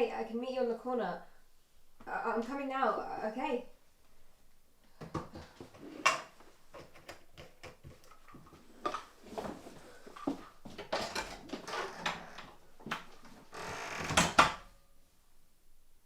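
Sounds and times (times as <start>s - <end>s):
objects being handled: 5.0s - 13.6s.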